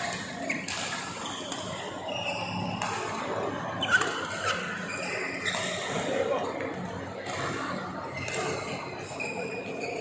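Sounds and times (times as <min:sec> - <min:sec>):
shoes squeaking on court floor: 0:00.0 - 0:02.8, 0:03.8 - 0:06.0, 0:08.1 - 0:10.0
rackets hitting shuttlecock: 0:00.0 - 0:06.1.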